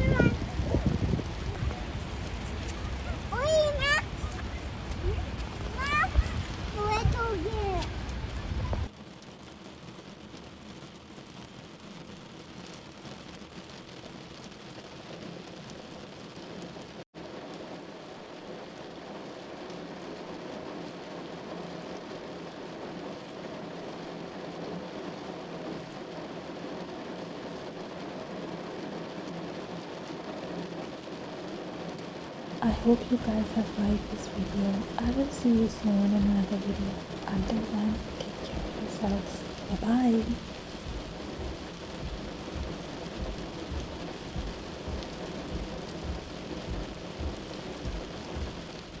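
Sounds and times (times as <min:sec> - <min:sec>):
low rumbles: 0:00.0 - 0:08.9, 0:32.7 - 0:49.0
steady rain falling: 0:00.0 - 0:49.0.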